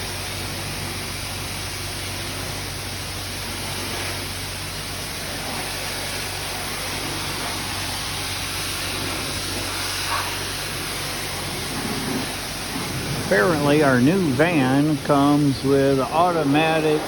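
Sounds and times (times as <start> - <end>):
spray wand spraying water: 0.0 - 17.0
low hum: 10.6 - 17.0.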